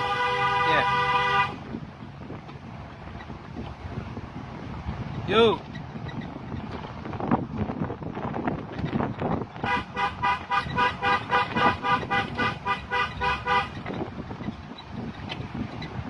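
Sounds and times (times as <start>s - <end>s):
vehicle horn short toots: 0.0s - 1.6s, 9.6s - 13.9s
road and wind noise: 0.0s - 16.0s.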